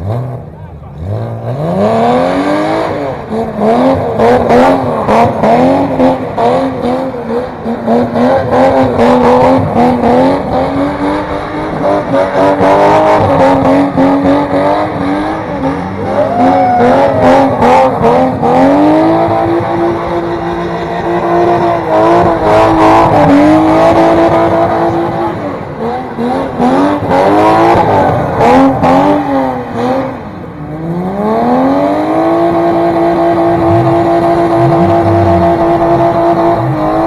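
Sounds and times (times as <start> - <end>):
car engine revving: 0.0 - 37.0
tyre squeal: 15.7 - 17.9.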